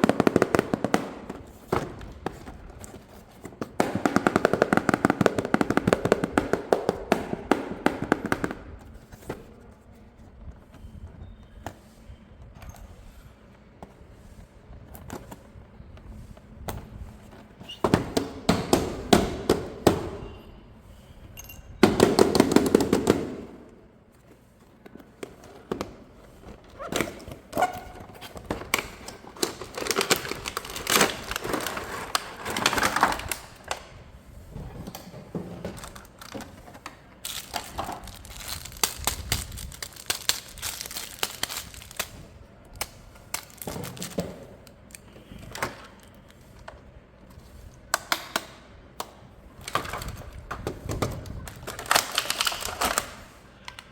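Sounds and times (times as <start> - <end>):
packaging crinkling and rustling: 24.1 - 33.8, 35.2 - 47.9, 49.5 - 53.9.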